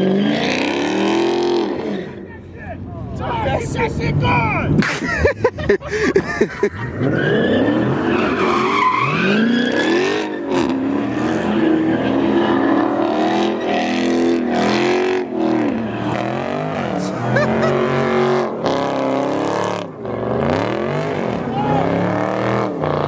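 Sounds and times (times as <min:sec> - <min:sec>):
car engine revving: 0:06.3 - 0:23.0.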